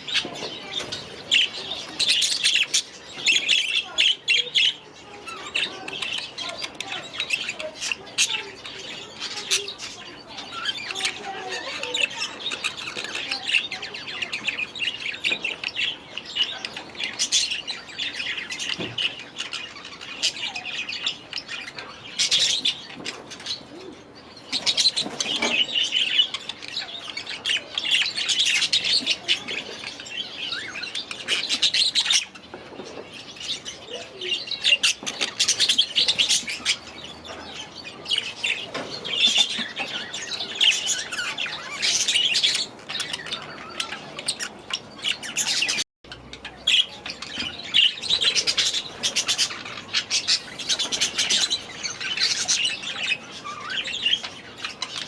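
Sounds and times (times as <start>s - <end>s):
budgerigars chattering and chirping: 0.0s - 55.0s.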